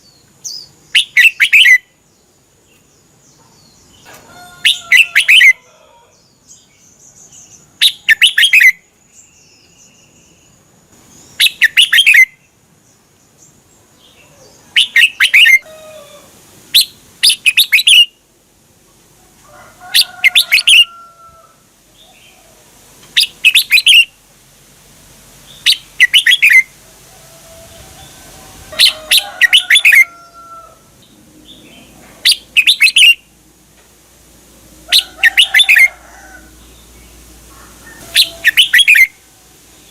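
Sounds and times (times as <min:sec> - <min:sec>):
bird chirping phrases: 0:00.0 - 0:15.6, 0:23.2 - 0:24.1, 0:25.5 - 0:26.7, 0:28.8 - 0:33.3, 0:38.0 - 0:39.1.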